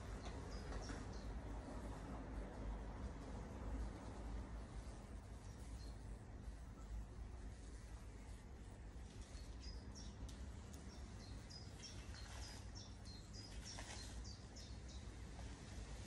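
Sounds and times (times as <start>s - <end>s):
small bird chirping: 0.0s - 1.4s, 5.3s - 6.1s, 9.1s - 15.1s
low outdoor rumble: 0.0s - 16.0s.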